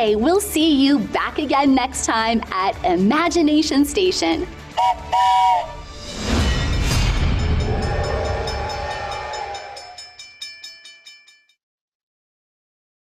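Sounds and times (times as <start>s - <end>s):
train horn chord: 4.7s - 5.9s
train whistle: 4.7s - 5.9s
train rumbling: 4.8s - 10.1s.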